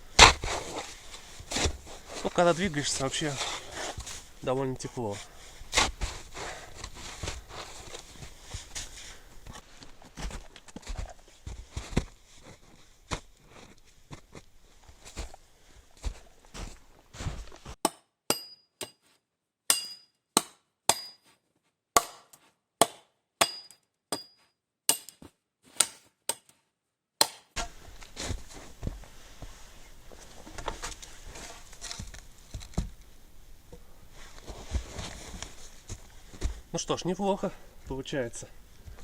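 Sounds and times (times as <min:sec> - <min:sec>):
rustling and handling noises: 0:00.1 - 0:17.8, 0:27.6 - 0:39.0
axe striking wood: 0:00.2 - 0:00.6, 0:17.8 - 0:19.0, 0:19.7 - 0:21.2, 0:22.0 - 0:26.6, 0:27.2 - 0:27.8.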